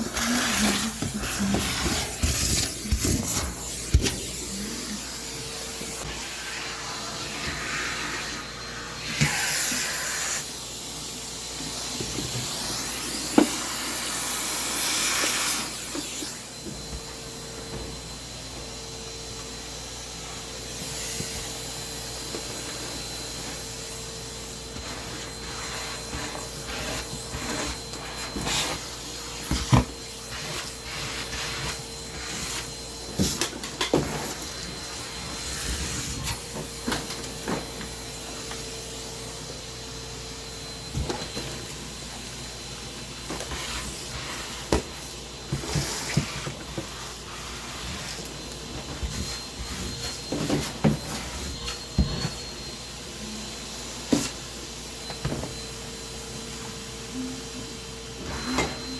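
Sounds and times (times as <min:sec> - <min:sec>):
vacuum cleaner running: 0:00.0 - 0:58.9.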